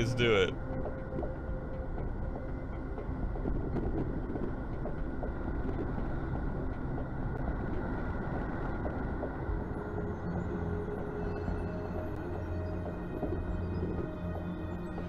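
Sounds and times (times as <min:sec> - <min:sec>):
wind on microphone: 0:02.8 - 0:11.4.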